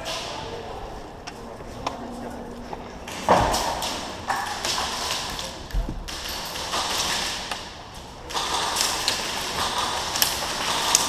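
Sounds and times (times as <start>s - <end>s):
airsoft guns firing bursts: 3.2s - 11.0s.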